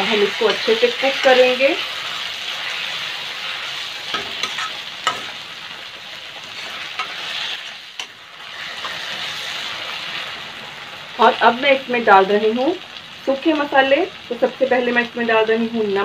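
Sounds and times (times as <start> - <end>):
onion and tomato sizzling in oil: 0.0 - 16.0
steel spatula scraping a pan: 0.4 - 5.6, 6.4 - 9.8.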